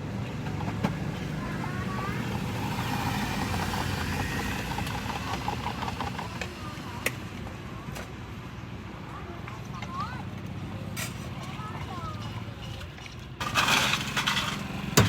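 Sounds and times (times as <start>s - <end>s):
vehicle passing: 0.3s - 7.0s.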